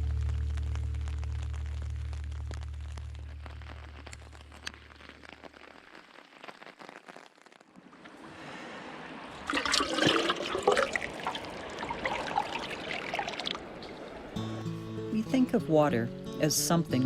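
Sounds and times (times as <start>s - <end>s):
low hum: 0.0s - 4.8s
running stream water: 7.8s - 14.6s.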